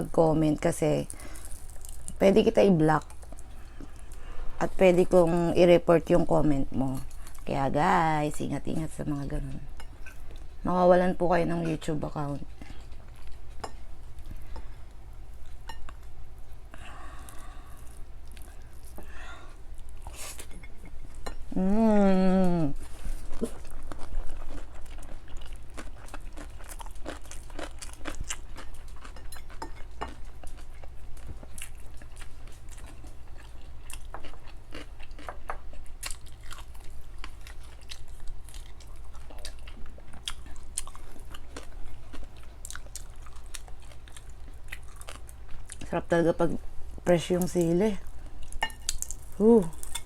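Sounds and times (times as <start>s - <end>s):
person chewing crunchy food: 1.0s - 2.2s, 12.4s - 21.3s, 22.5s - 46.0s, 48.0s - 50.0s
person humming: 21.5s - 22.8s, 49.4s - 49.8s.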